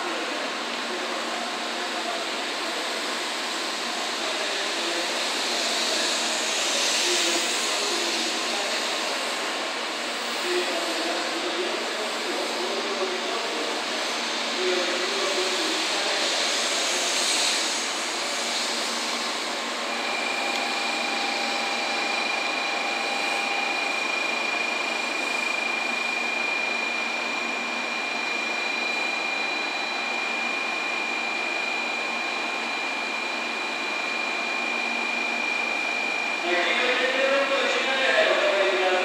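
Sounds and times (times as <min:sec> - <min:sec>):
trains whirring hum: 0:00.0 - 0:39.0
high-pitched whine: 0:10.1 - 0:39.0.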